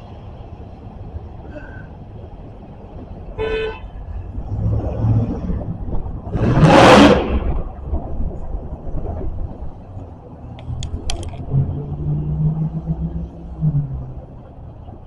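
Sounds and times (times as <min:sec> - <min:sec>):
locomotive engine rumbling: 0:00.0 - 0:15.0
locomotive horn toot: 0:03.4 - 0:04.0.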